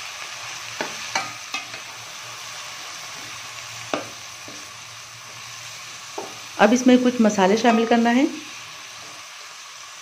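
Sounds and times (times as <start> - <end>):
meat and onions sizzling: 0.0 - 10.0
spoon knocking against pan: 0.8 - 1.8.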